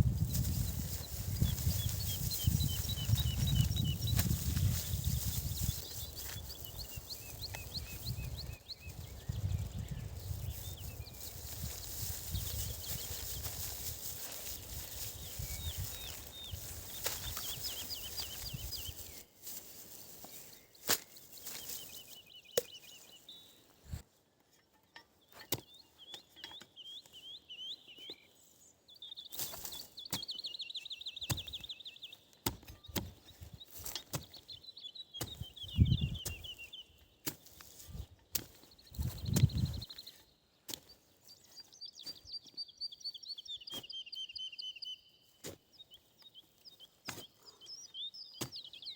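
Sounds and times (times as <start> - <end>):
songbird trilling: 0.3 - 19.2, 34.4 - 37.0.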